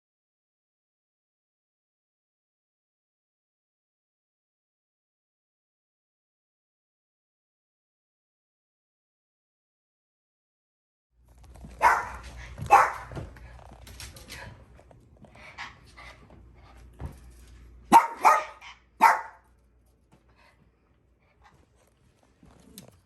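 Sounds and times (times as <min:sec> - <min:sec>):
dog barking: 0:11.8 - 0:13.2, 0:17.9 - 0:19.5.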